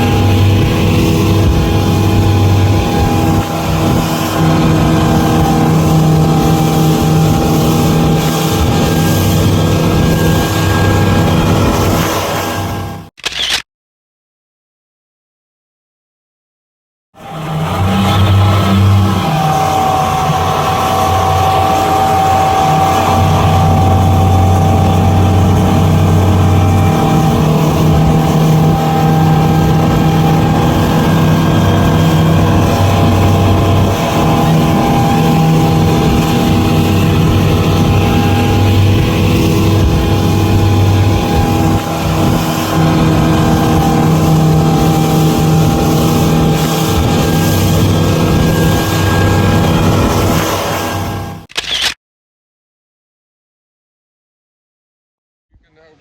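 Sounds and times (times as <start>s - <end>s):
speedboat engine running: 0.0s - 13.1s, 17.2s - 51.5s.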